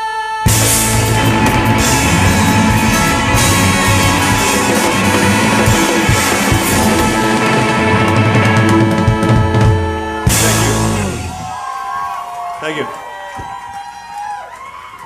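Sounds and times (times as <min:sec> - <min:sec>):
live band playing instrumental: 0:00.5 - 0:11.5
drum kit: 0:00.5 - 0:11.6.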